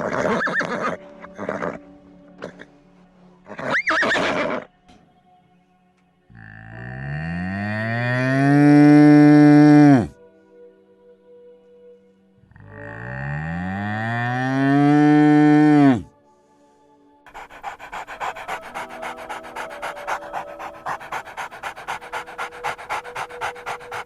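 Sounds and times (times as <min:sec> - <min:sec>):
faint background music: 0:00.0 - 0:24.0
cow mooing: 0:06.4 - 0:10.1, 0:12.7 - 0:16.1
dog panting: 0:17.3 - 0:24.0.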